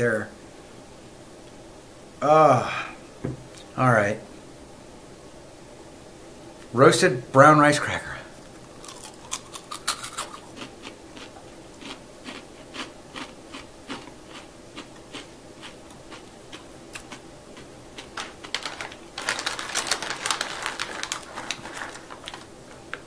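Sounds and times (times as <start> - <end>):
rice cracker crunching: 8.7 - 23.0
plastic snack bag crinkling: 17.0 - 23.0.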